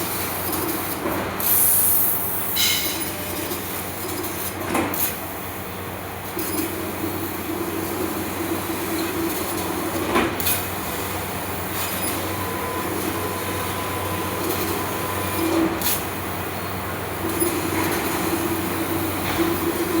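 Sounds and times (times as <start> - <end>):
laser cutting machine humming: 6.2 - 20.0.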